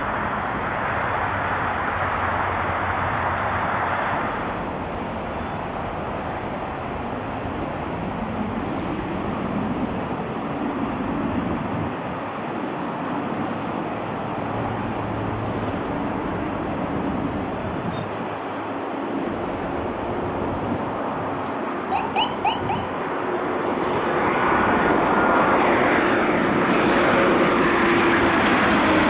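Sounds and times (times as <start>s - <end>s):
jet engines roaring: 19.3s - 29.0s.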